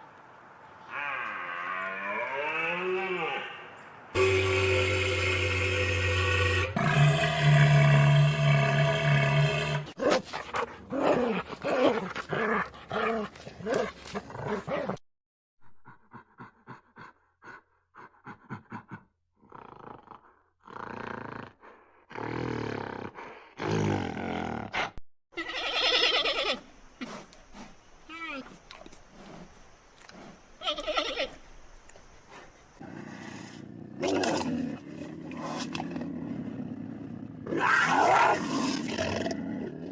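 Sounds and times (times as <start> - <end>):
dogs growling and barking: 6.9 - 15.0.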